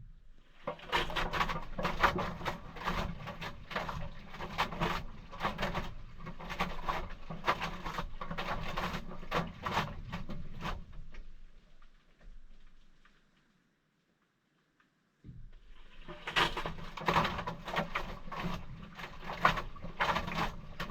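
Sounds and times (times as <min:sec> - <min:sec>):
sloshing clunking load: 0:00.6 - 0:10.9, 0:15.5 - 0:20.9.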